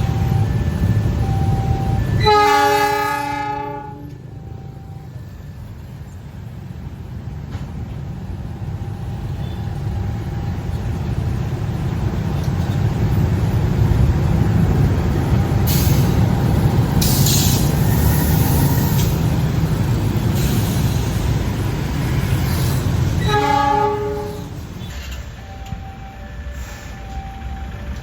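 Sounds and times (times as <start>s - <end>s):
multi-pitch warning tone: 0.0s - 6.2s, 25.3s - 28.0s
train wheels rumbling on rail: 0.0s - 28.0s.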